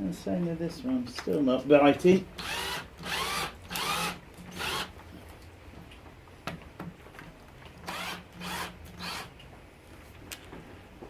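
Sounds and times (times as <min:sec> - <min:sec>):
power drill bursts: 0:02.4 - 0:04.9, 0:07.8 - 0:09.3.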